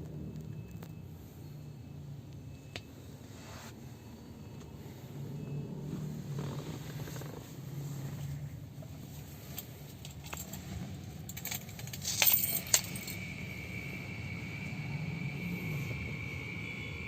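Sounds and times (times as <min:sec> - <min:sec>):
keys jangling: 0:09.6 - 0:13.3
steady high tone: 0:12.4 - 0:17.0.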